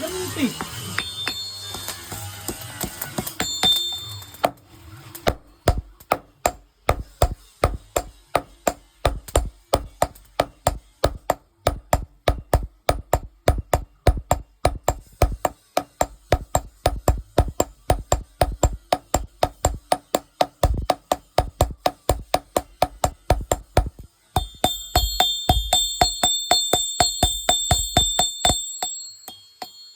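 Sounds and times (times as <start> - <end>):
hammer striking steel on anvil: 0.6 - 4.6, 5.2 - 29.9.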